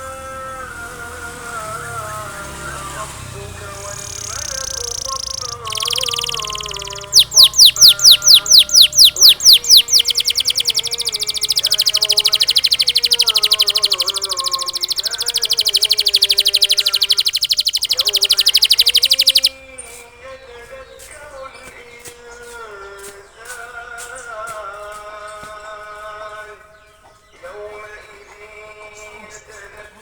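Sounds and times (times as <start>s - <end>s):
canary singing trills: 1.5s - 20.0s.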